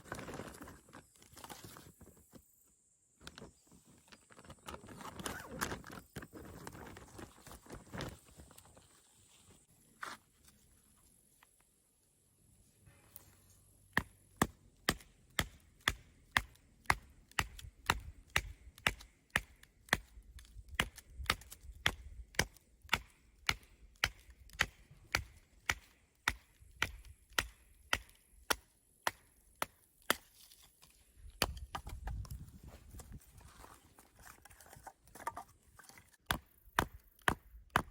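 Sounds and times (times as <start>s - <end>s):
sharp chopping strikes: 13.9s - 20.1s, 20.8s - 30.3s.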